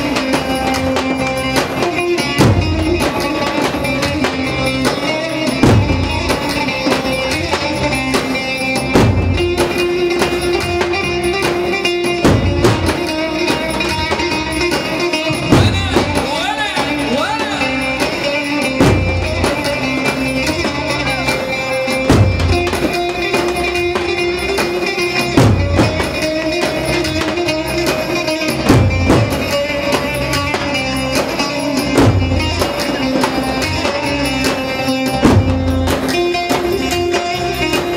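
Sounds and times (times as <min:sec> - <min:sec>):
folk dance band music: 0:00.0 - 0:37.9
heavy low drum hits: 0:15.4 - 0:16.3, 0:18.8 - 0:19.6, 0:22.1 - 0:22.9, 0:25.4 - 0:26.0, 0:35.2 - 0:36.1.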